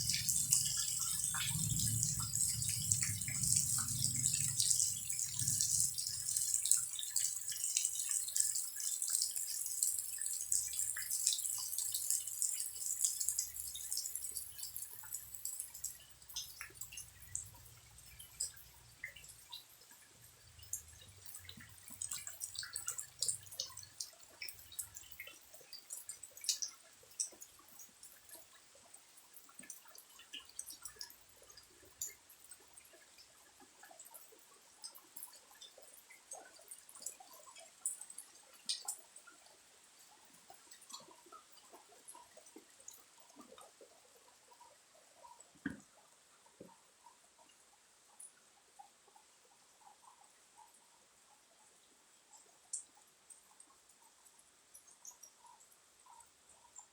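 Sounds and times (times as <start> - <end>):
rain falling: 0.0 - 16.0
water dripping: 0.0 - 56.9.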